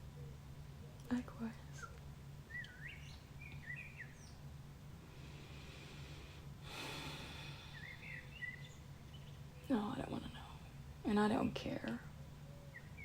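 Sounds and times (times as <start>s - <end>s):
low steady hum: 0.0s - 13.0s
birdsong warbling: 1.4s - 4.5s, 7.3s - 13.0s
breathy exhale: 5.1s - 8.4s.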